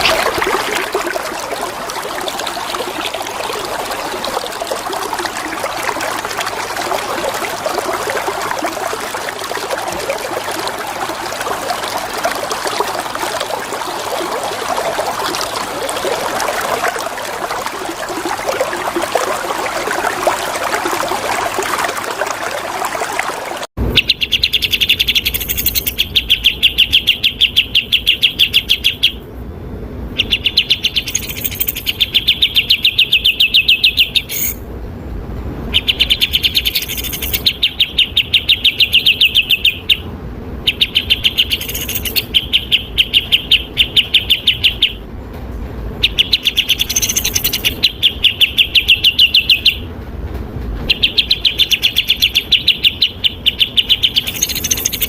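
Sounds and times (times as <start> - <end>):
flowing water: 0.0 - 29.2, 30.2 - 34.7, 35.6 - 45.1, 45.8 - 49.9, 50.8 - 55.0
bird song sharp repeated notes: 24.0 - 29.2, 30.2 - 34.6, 35.8 - 40.1, 40.7 - 45.0, 46.0 - 49.8, 50.9 - 55.0.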